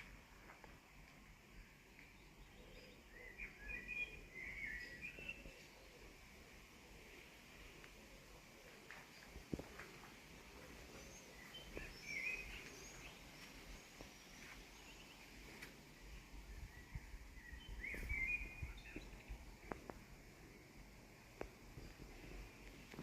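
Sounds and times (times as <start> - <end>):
birds chirping and singing: 2.5 - 5.9, 10.9 - 15.3, 16.5 - 19.8.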